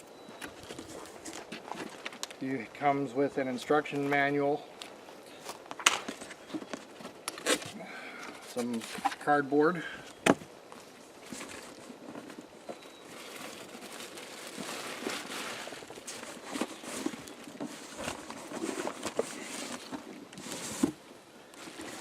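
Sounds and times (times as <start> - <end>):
cardboard rustling and scraping: 0.3 - 2.4, 5.4 - 9.3, 10.8 - 21.0, 21.6 - 22.0.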